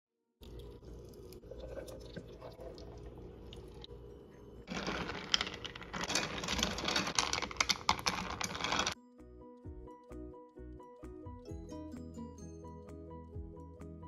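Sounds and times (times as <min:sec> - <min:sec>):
ice clinking in a glass pitcher: 0:04.7 - 0:09.0.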